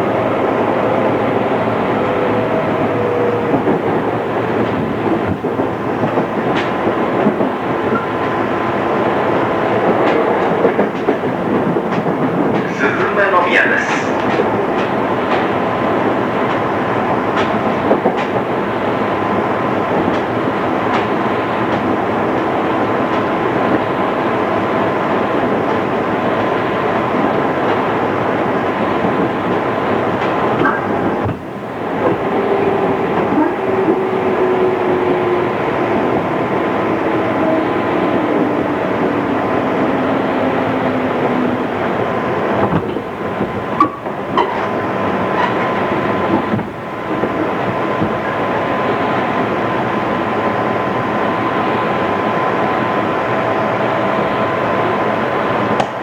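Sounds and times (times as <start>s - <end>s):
train running rumble: 0.0s - 56.0s.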